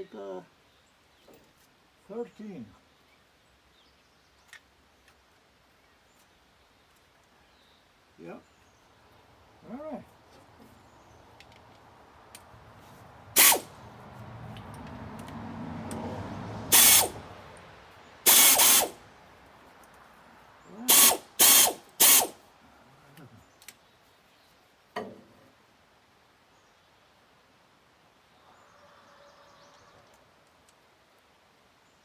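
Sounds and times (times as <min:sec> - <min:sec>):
ratchet wrench clicking: 0:13.4 - 0:13.7, 0:16.7 - 0:17.2, 0:18.3 - 0:19.0, 0:20.9 - 0:22.4.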